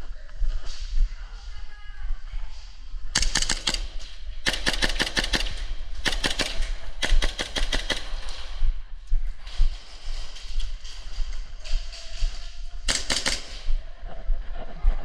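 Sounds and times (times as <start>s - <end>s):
airsoft gun firing bursts: 3.2s - 8.6s, 12.9s - 13.8s.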